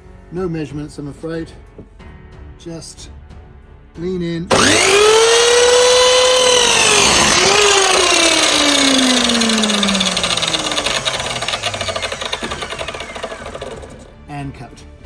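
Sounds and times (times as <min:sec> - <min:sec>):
power saw cutting wood: 0:04.5 - 0:14.2.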